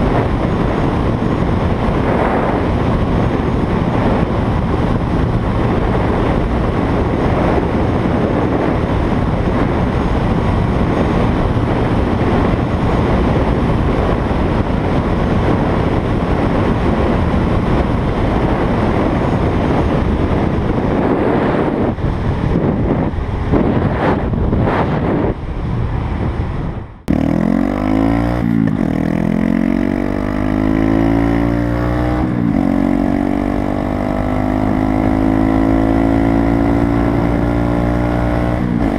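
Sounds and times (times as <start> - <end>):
wind rush over microphone: 0.0 - 38.9
motorcycle engine revving: 26.9 - 38.9.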